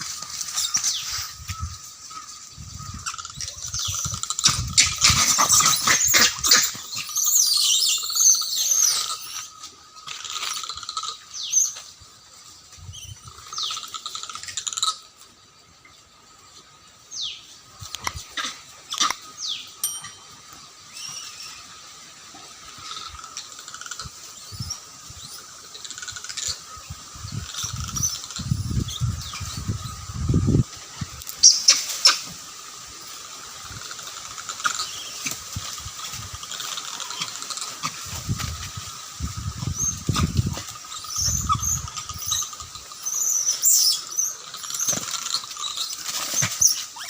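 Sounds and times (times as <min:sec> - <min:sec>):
monkeys shrieking: 0:02.1 - 0:11.2, 0:18.1 - 0:19.3, 0:34.0 - 0:47.0
steady high tone: 0:19.8 - 0:20.5.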